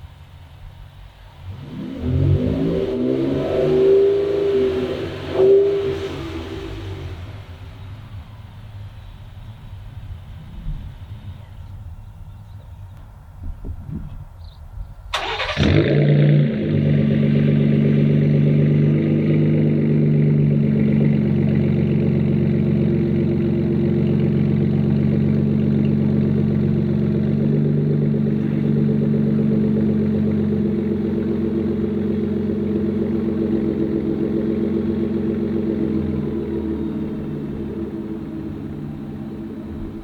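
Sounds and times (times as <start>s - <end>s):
engine cranking and starting: 15.1s - 16.8s
engine idling through exhaust: 15.1s - 40.0s.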